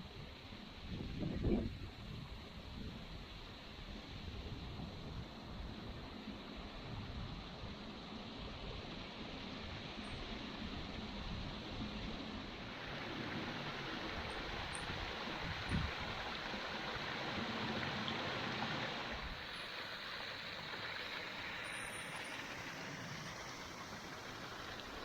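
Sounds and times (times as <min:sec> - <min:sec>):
stream rushing over rocks: 0:12.6 - 0:25.0.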